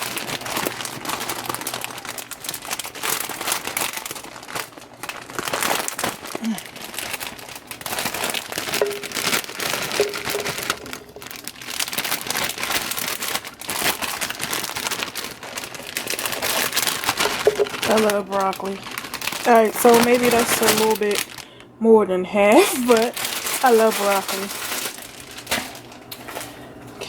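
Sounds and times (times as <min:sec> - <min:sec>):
florets falling into a pan: 0:00.0 - 0:21.5
plastic bag crinkling: 0:00.0 - 0:21.7, 0:22.4 - 0:27.0.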